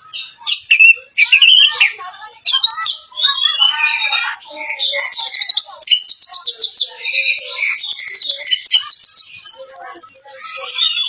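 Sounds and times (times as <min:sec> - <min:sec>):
thrush singing rapid trills: 0:00.0 - 0:11.0.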